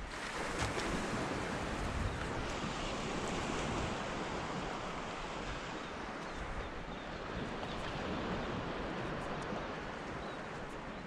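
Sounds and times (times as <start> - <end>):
shallow water: 0.0 - 11.0
wind buffeting microphone: 0.0 - 11.0.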